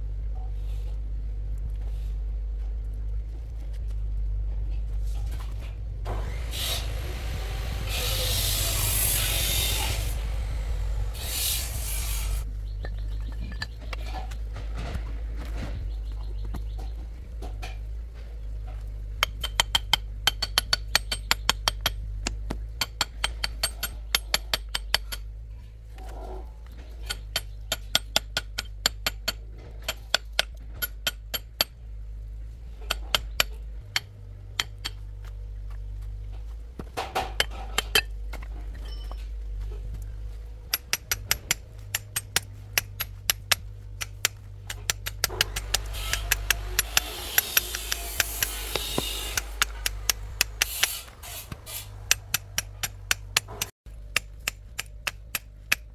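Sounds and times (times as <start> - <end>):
steady low hum: 0.0 - 55.9
metal rasping: 6.2 - 15.0, 18.6 - 55.9.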